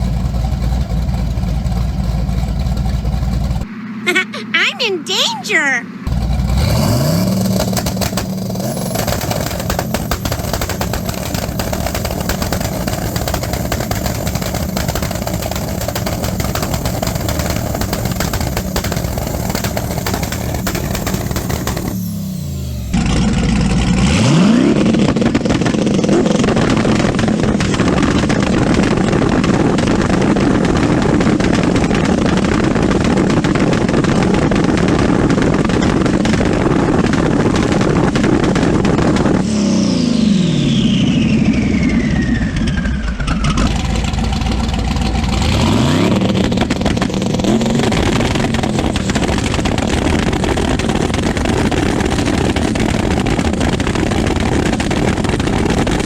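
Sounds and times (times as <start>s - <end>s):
car engine banging on limiter: 5.9s - 23.7s, 24.7s - 39.5s, 43.6s - 56.0s.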